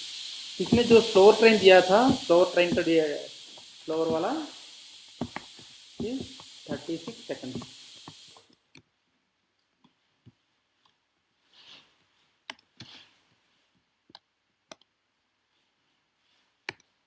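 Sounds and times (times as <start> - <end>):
soft hissing: 0.0 - 8.6, 11.4 - 13.7.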